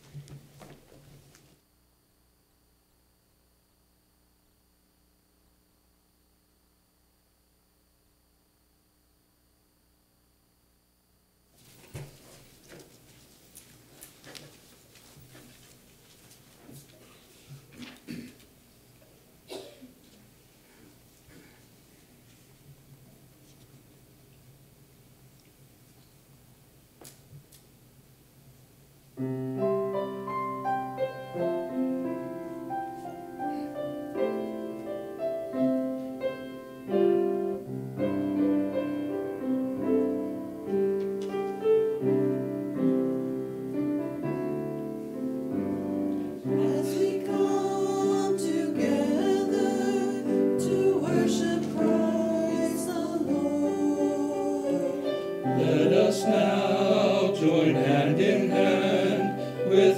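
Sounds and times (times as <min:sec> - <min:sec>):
hymn on keyboard instrument: 0:29.8 - 0:59.9
congregation singing: 0:30.0 - 0:39.2, 0:39.8 - 0:59.9.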